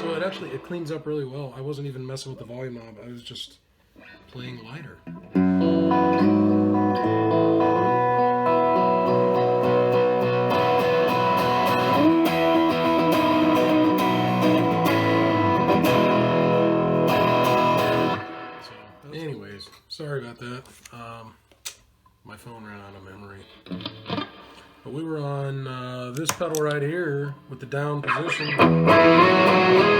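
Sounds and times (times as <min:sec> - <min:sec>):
overdriven electric guitar chords: 0:00.0 - 0:00.9, 0:05.1 - 0:19.0, 0:23.6 - 0:24.8, 0:28.0 - 0:29.9.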